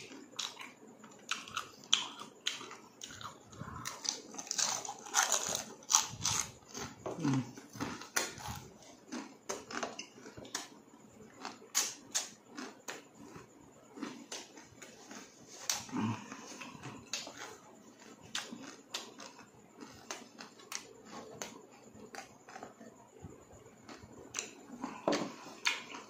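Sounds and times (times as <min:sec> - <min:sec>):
wet chewing and lip smacks: 0:11.4 - 0:15.8.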